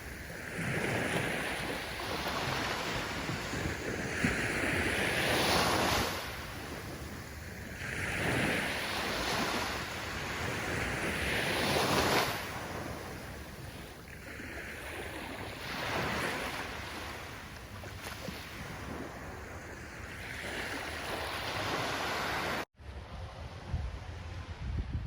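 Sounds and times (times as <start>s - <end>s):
ocean waves breaking: 0.0s - 23.0s
low wind-like rumble: 22.8s - 25.0s.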